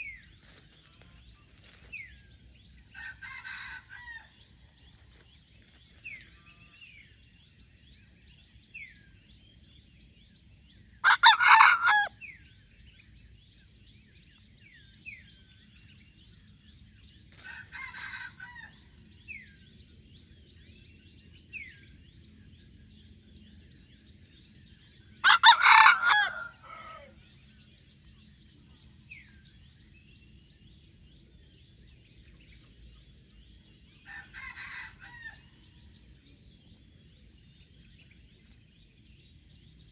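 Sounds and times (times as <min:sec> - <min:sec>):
rooster crowing: 0:03.0 - 0:04.4, 0:11.0 - 0:12.2, 0:17.4 - 0:18.8, 0:25.2 - 0:27.2, 0:34.0 - 0:35.5.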